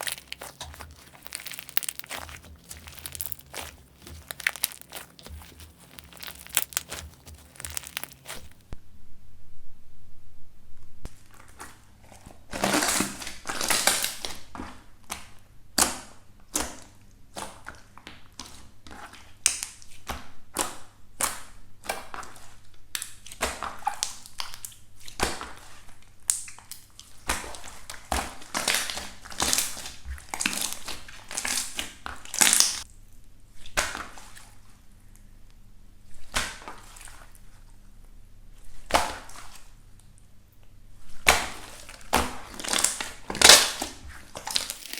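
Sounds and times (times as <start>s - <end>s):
slime squeezed by hand crackling: 0.0s - 8.7s.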